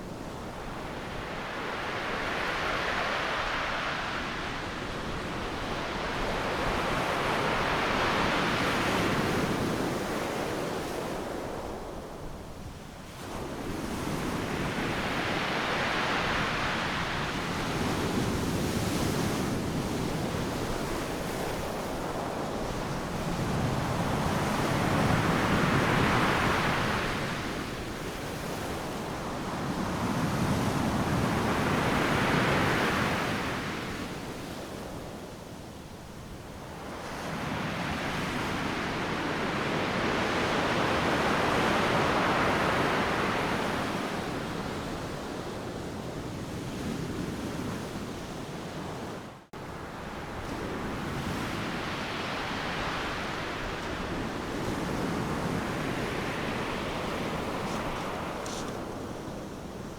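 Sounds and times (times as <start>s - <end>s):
ocean surf breaking on beach: 0.0s - 11.8s, 36.6s - 45.9s, 48.8s - 59.9s.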